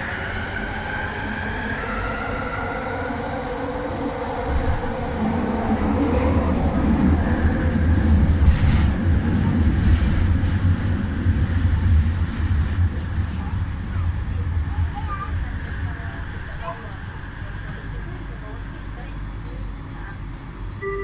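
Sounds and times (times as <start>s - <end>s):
train whining tone: 0.0s - 10.3s, 20.7s - 21.0s
train low rumble: 0.0s - 21.0s.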